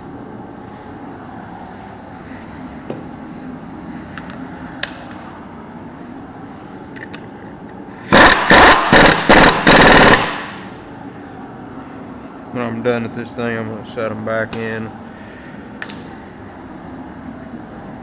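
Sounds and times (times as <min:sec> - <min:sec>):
impact wrench hammering: 0:08.1 - 0:10.6.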